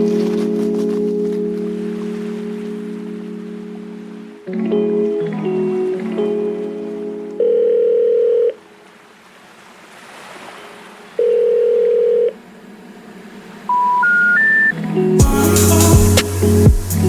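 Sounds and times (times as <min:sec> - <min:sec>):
short rising beeps: 0:13.7 - 0:14.8
long electronic beeps: 0:13.7 - 0:15.4.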